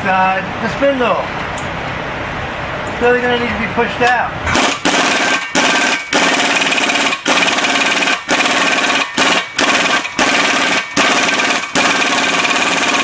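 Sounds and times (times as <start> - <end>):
pneumatic air tool hammering: 4.5 - 13.0.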